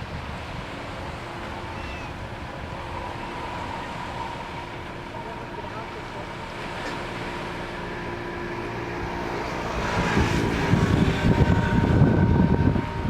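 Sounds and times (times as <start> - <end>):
wind buffeting microphone: 0.0 - 5.0, 8.4 - 13.0
ship's engine droning: 0.0 - 13.0.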